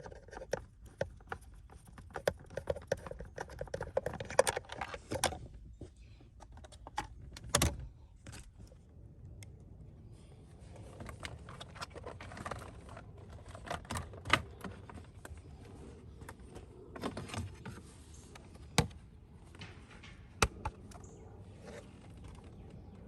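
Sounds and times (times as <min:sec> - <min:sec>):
tools and parts rattling: 0:00.0 - 0:05.6, 0:10.8 - 0:23.0.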